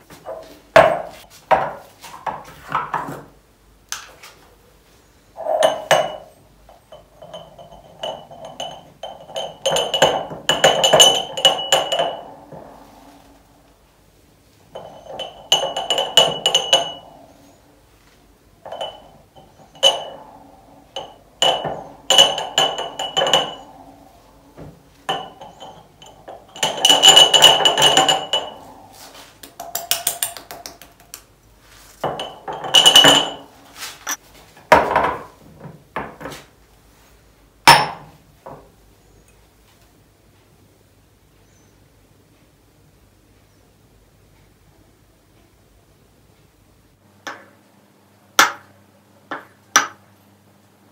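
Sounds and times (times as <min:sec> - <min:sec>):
glass jars clinking: 0:05.4 - 0:12.7, 0:14.7 - 0:17.6, 0:18.6 - 0:28.8, 0:29.6 - 0:30.7, 0:32.0 - 0:34.2, 0:37.7 - 0:38.1.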